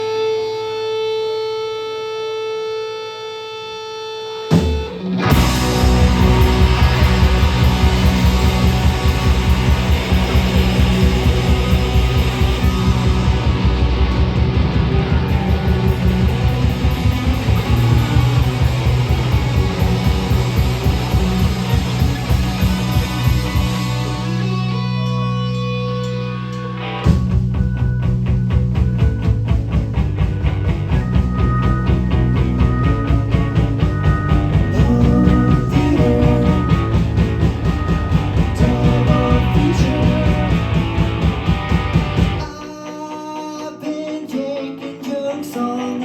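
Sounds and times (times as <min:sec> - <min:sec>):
held guitar note ringing: 0:04.5 - 0:28.6
rock band playing loud: 0:04.5 - 0:46.0
sudden band hit: 0:04.6 - 0:24.4.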